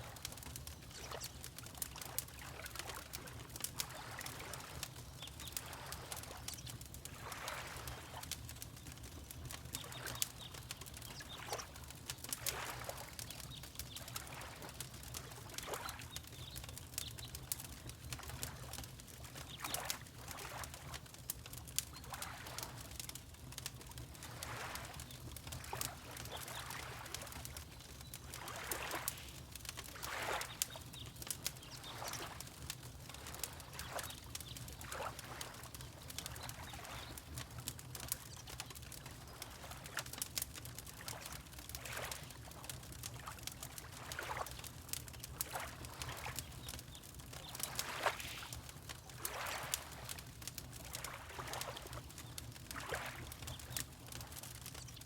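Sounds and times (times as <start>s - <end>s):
water lapping: 0.0s - 8.4s, 9.5s - 16.6s, 18.2s - 21.0s, 22.0s - 22.8s, 24.2s - 54.6s
fireplace crackling: 0.0s - 55.0s.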